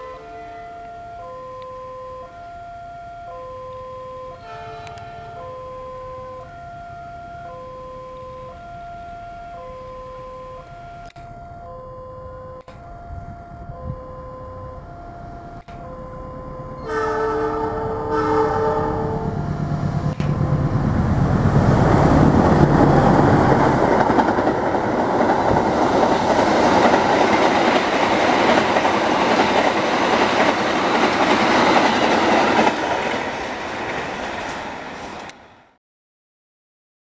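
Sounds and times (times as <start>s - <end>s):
train horn: 0.0s - 8.6s, 16.8s - 21.2s
locomotive engine hum: 0.0s - 35.5s
train wheels on rails: 14.7s - 35.7s.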